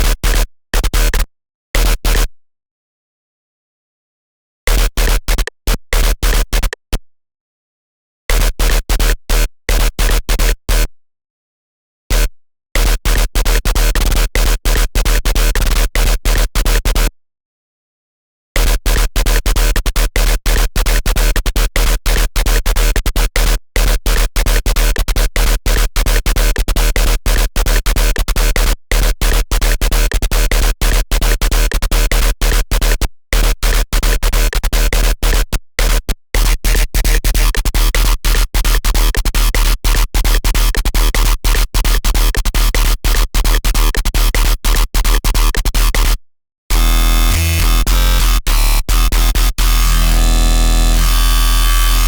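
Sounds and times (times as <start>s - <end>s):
harsh stuttering synth tones: 46.7s - 51.1s
deep synth bass: 46.7s - 52.0s.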